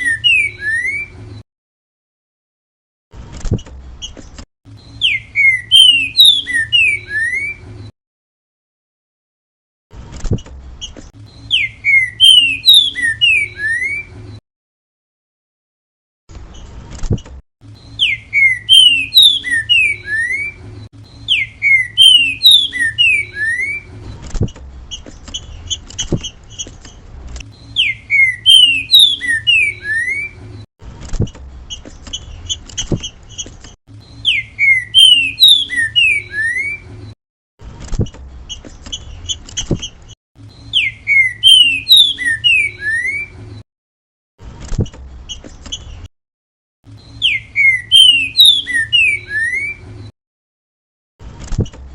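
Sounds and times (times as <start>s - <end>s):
bird singing sliding whistled notes: 0.0s - 1.3s, 4.0s - 7.7s, 10.8s - 14.3s, 17.7s - 24.2s, 27.5s - 30.7s, 34.0s - 37.2s, 40.4s - 43.6s, 46.9s - 50.1s.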